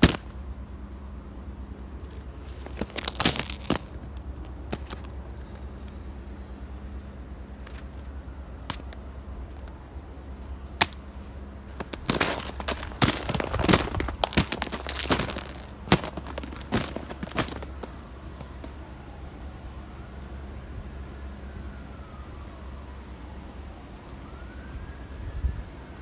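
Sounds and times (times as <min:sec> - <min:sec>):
footsteps crunching on icy snow: 0:00.0 - 0:00.4, 0:01.8 - 0:05.9, 0:07.6 - 0:09.8, 0:10.8 - 0:18.8.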